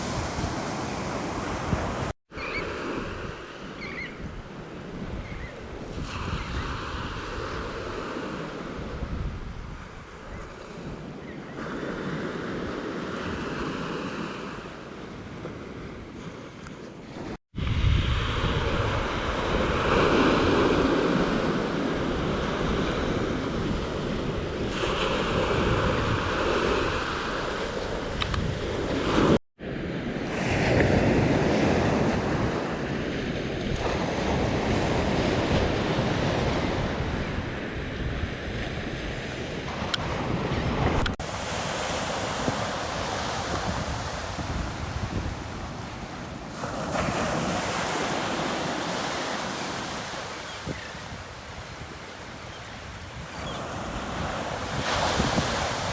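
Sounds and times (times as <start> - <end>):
surf breaking on a beach: 0.0 - 3.7, 39.3 - 55.9
wind buffeting microphone: 0.0 - 8.0, 8.7 - 11.1, 17.6 - 20.9, 33.3 - 55.9.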